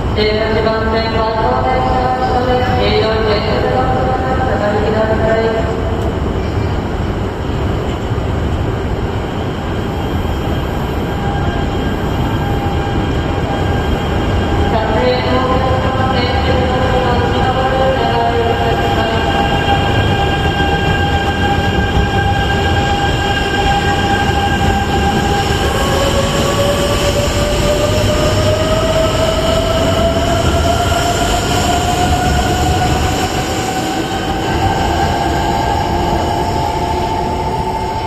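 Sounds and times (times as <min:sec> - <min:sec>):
train pulling away with whine: 0:09.0 - 0:38.0.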